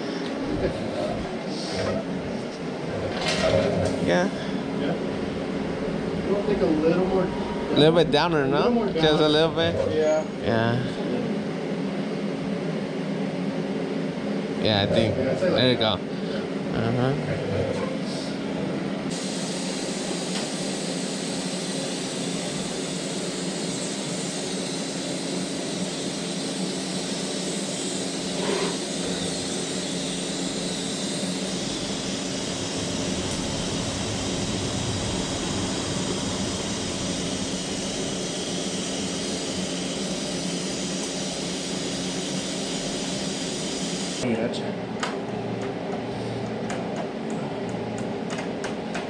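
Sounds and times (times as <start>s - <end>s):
electric welding arc hissing: 19.1s - 44.2s
low hum: 30.0s - 41.4s.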